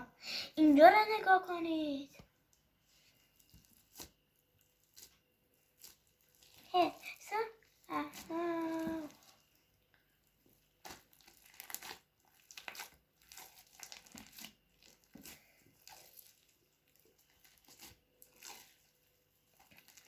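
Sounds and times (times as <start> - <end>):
slime crackling and popping: 10.2 - 20.0.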